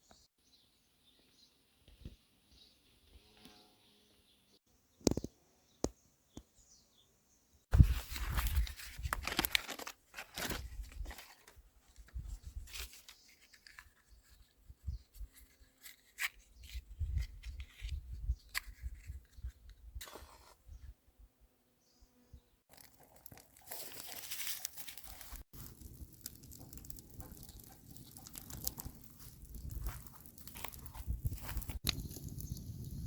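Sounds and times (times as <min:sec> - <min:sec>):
crunching and rustling: 0:07.7 - 0:20.5, 0:22.7 - 0:33.0.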